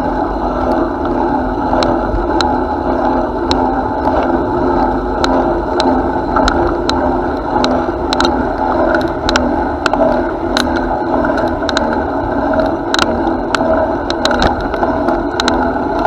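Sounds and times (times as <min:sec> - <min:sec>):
bicycle rolling: 0:00.0 - 0:16.0
sharp clicks and rattles: 0:00.7 - 0:02.6, 0:05.1 - 0:16.0.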